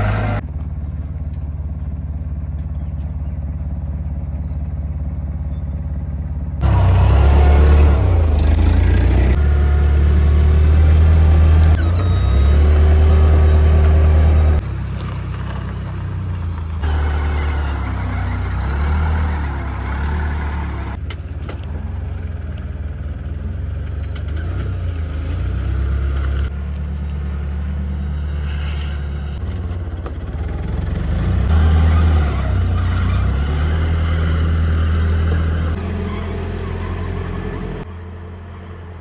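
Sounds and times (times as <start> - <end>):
vehicle engine humming: 0.0 - 39.0.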